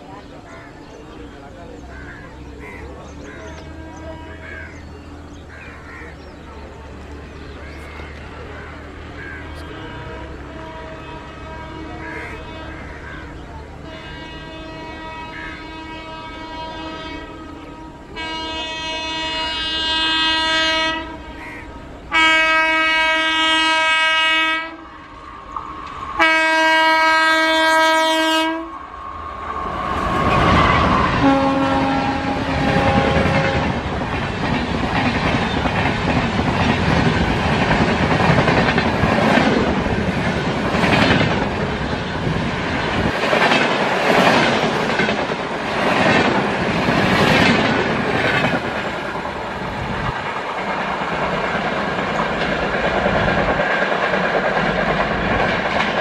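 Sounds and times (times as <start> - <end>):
train coaches rushing past: 0.0 - 56.0
locomotive horn blasts: 3.6 - 4.6, 9.4 - 13.0, 13.8 - 33.9
wheels clacking over rail joints: 29.5 - 56.0.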